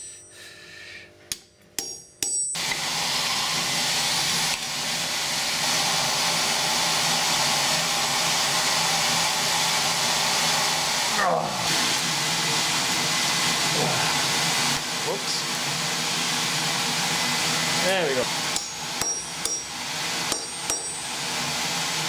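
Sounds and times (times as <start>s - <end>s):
loud steady rushing hiss: 5.0s - 18.6s
hammer blows ringing off steel: 18.6s - 21.0s.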